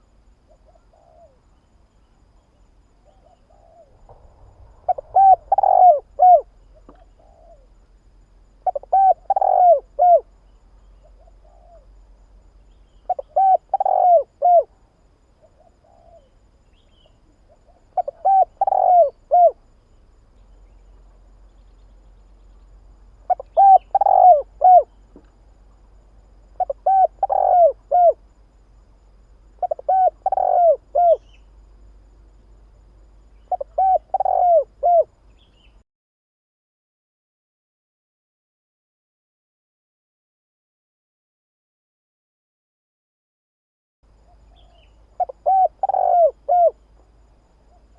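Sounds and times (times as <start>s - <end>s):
dove cooing: 0.5s - 1.4s, 3.0s - 4.2s, 4.8s - 7.7s, 8.6s - 10.4s, 11.0s - 12.0s, 13.1s - 14.7s, 15.4s - 16.3s, 17.5s - 19.6s, 23.3s - 25.0s, 26.6s - 28.2s, 29.6s - 31.4s, 33.5s - 35.1s, 44.5s - 46.8s.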